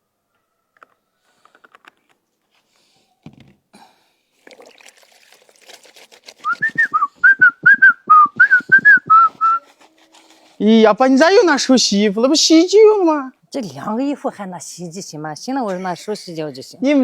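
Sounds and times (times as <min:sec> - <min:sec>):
water splashing: 0:04.4 - 0:06.9
clothes rubbed in hand washing: 0:04.4 - 0:07.0, 0:08.7 - 0:10.6
person whistling a tune: 0:06.4 - 0:09.7.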